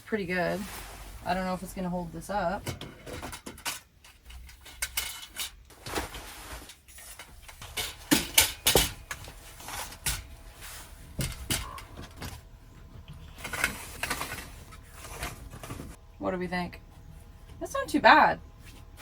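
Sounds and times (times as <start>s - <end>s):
curtains being handled: 3.1s - 11.8s.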